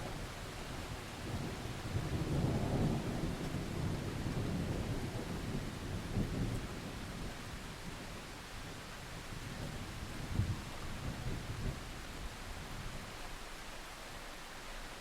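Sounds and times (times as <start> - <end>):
steady rain: 0.0 - 15.0
thunder rumbling: 1.2 - 8.1.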